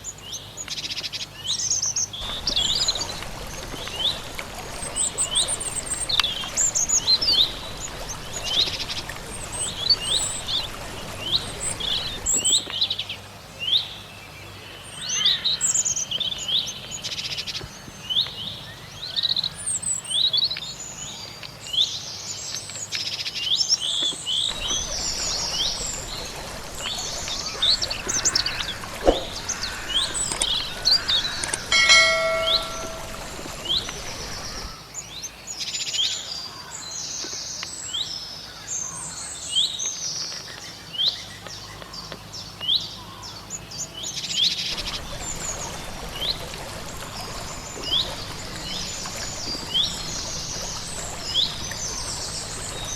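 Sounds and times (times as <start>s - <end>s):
bird call with held pitch: 2.2s - 12.5s, 24.5s - 34.8s, 44.8s - 52.9s
songbirds chirping and singing: 2.2s - 12.5s, 24.5s - 34.7s, 44.8s - 52.9s
background hiss: 2.2s - 12.6s, 24.5s - 34.7s, 44.8s - 52.9s.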